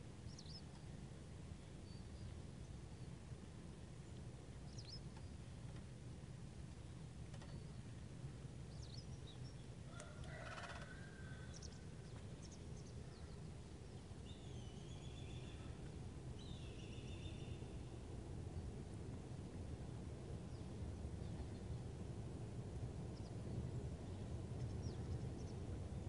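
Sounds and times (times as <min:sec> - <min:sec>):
low outdoor rumble: 0:00.0 - 0:26.0
wild birds calling: 0:09.0 - 0:13.5.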